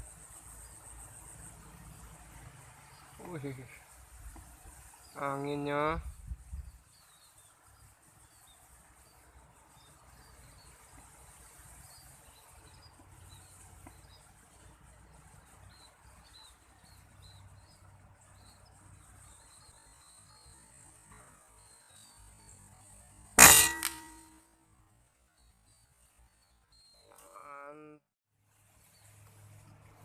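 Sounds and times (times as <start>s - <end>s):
high insect drone: 0.0s - 23.4s.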